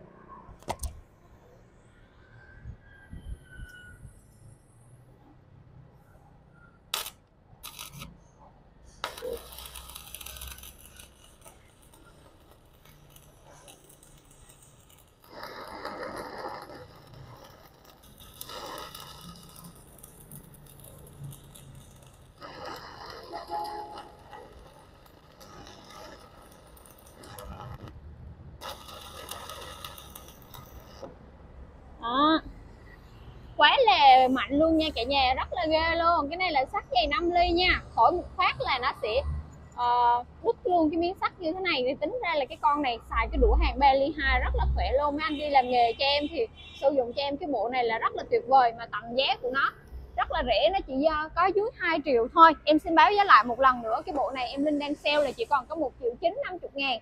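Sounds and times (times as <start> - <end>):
welding arc crackling: 6.9 - 8.3, 9.0 - 31.4, 52.8 - 55.8.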